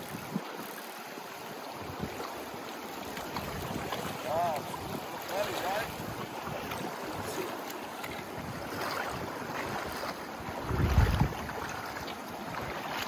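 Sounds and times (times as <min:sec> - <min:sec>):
river water flowing over rocks: 0:00.0 - 0:13.0
wind buffeting microphone: 0:01.7 - 0:02.3, 0:03.2 - 0:07.5, 0:08.2 - 0:12.9.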